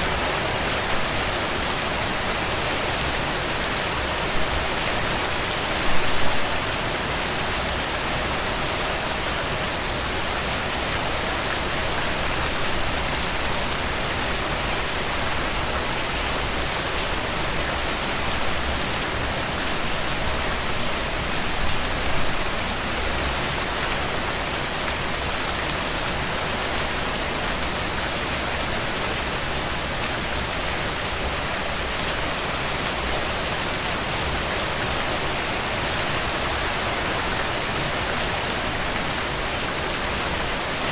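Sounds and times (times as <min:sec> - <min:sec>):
rain falling on a tent: 0:00.0 - 0:40.9.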